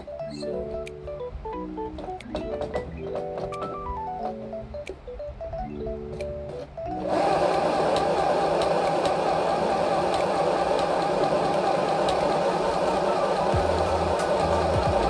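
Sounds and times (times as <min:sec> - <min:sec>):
background music with plucked notes: 0:00.0 - 0:15.0
sewing machine running: 0:07.0 - 0:15.0.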